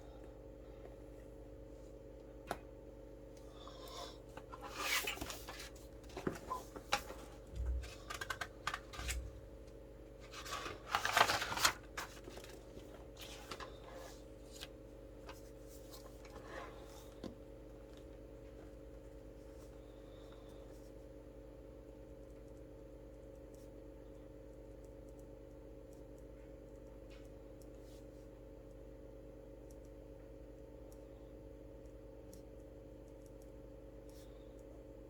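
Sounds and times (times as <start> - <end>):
low electrical hum: 0.0 - 35.0
paper rustling: 4.5 - 9.4, 10.2 - 16.5.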